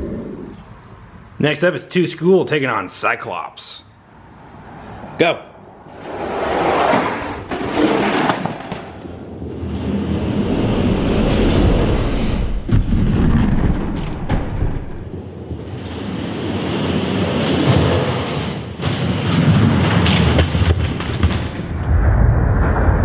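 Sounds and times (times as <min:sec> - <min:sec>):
toy trucks rolling on track: 0:06.0 - 0:09.2
clatter: 0:06.8 - 0:09.3, 0:17.5 - 0:22.0.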